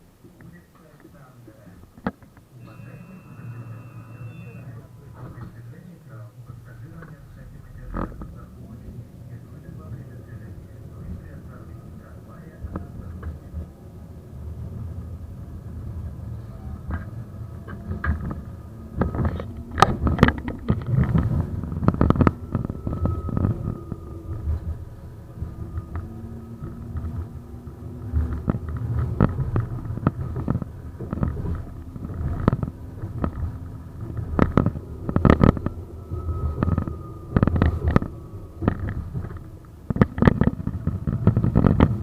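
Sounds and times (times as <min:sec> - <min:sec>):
faint steady whine: 0:00.0 - 0:42.0
tram rumbling: 0:00.0 - 0:42.0
wheels clattering on track: 0:00.3 - 0:42.0.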